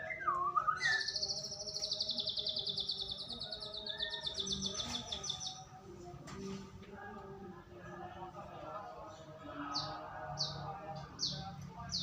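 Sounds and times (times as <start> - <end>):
bird buzzy trill: 0.8 - 5.6.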